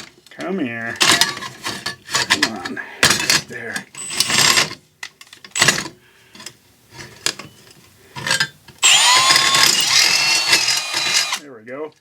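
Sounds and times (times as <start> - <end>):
metal parts clattering: 1.0 - 4.8
power drill cutting metal: 8.8 - 11.4.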